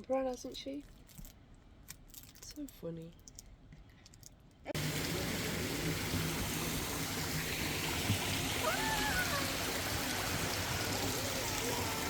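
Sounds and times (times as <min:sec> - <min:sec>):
flowing water rushing: 0:04.8 - 0:12.0.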